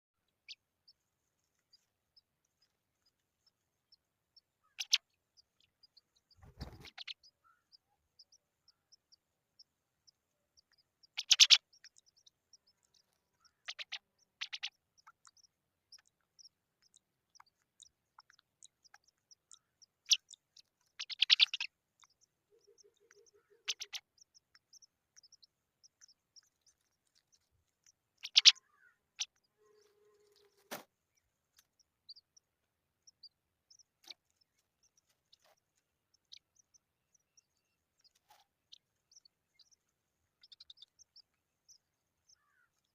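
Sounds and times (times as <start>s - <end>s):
young pipit cheeping: 4.4s - 30.8s, 31.6s - 39.8s, 40.4s - 42.9s
faint tiny ticks: 10.6s - 32.2s.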